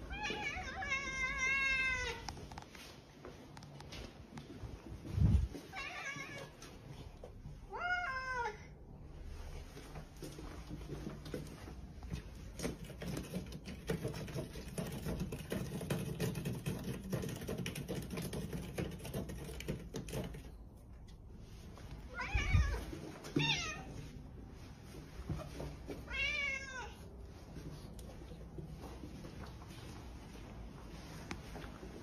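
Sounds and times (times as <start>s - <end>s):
cat meowing: 0.0s - 2.3s, 5.7s - 6.6s, 7.7s - 8.7s, 22.1s - 24.0s, 26.0s - 27.0s
rustling with light clicking: 0.0s - 7.6s, 9.1s - 32.0s.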